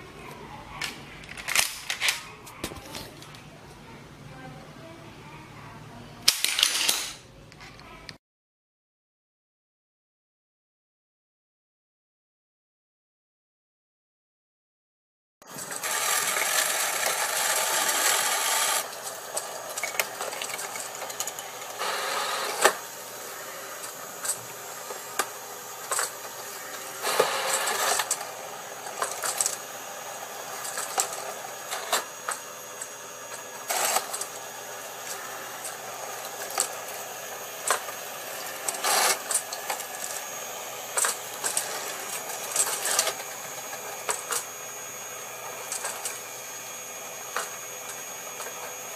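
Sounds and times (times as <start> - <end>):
plastic parts clicking: 0.8 - 3.4, 6.3 - 7.8
electric motors whirring: 15.5 - 48.9.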